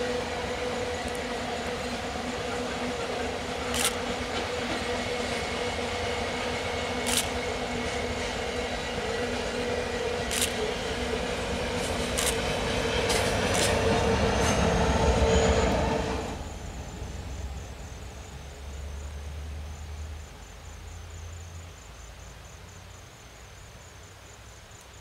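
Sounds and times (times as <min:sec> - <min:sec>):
wheels clicking on rails: 0:00.0 - 0:16.2
locomotive engine passing: 0:00.0 - 0:20.2
insects chirping: 0:00.0 - 0:25.0
low rumble of train: 0:00.0 - 0:25.0.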